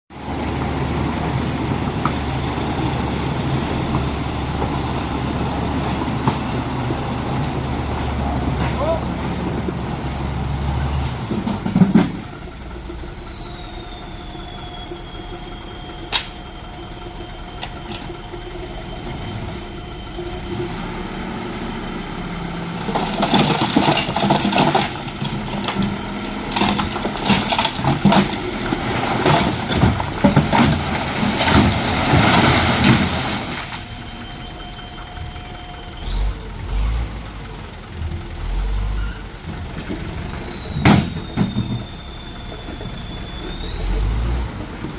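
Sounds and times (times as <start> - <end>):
dump truck engine whine: 0.1 - 44.9
earth and rocks sliding out: 22.8 - 33.9.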